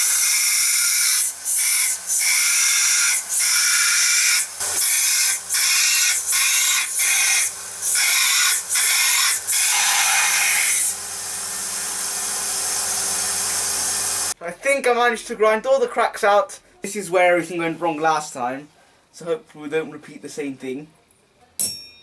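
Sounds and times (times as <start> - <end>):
grinder grinding knife blade: 0.0 - 14.4
grinder running: 0.0 - 14.4.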